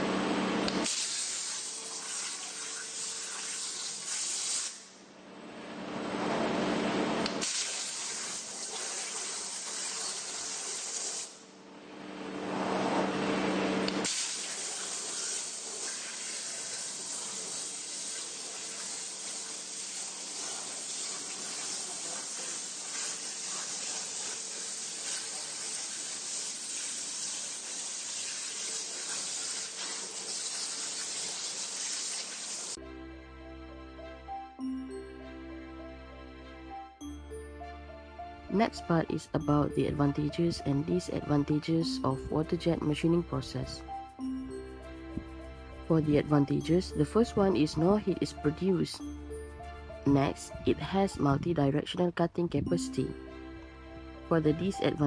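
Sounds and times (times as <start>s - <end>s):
high-pressure water jet spraying: 0.8s - 4.9s, 7.4s - 11.4s, 14.0s - 32.8s
music: 32.8s - 55.0s.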